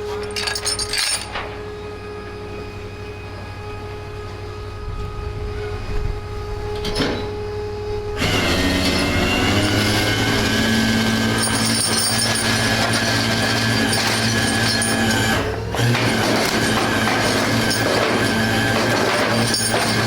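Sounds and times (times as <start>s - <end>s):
winch grinding and screeching: 0.0s - 1.6s, 8.2s - 20.0s
truck engine humming: 7.4s - 20.0s.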